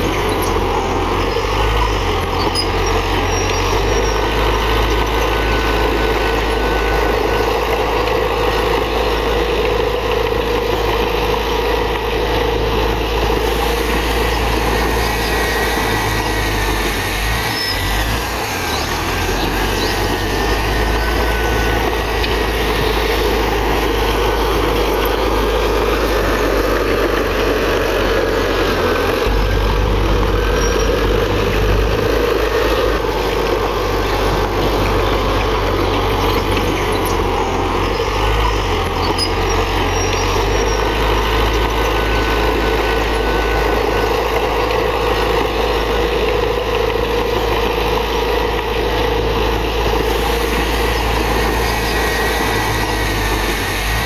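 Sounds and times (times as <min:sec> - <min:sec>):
faint high squeaks: 0:00.0 - 0:07.9, 0:13.4 - 0:26.8, 0:34.7 - 0:44.2
heavy diesel engine running: 0:00.0 - 0:54.0.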